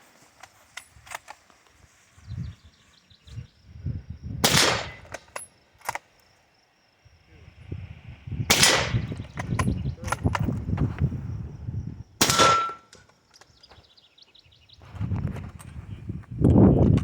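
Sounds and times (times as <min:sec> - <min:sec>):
rifle shot: 0:04.4 - 0:05.2, 0:08.5 - 0:09.2, 0:12.2 - 0:13.0.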